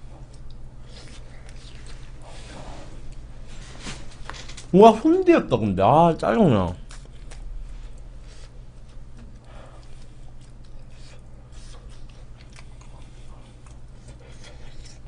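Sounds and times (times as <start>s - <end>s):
crunchy biting and chewing: 0.3s - 2.4s, 9.3s - 15.0s.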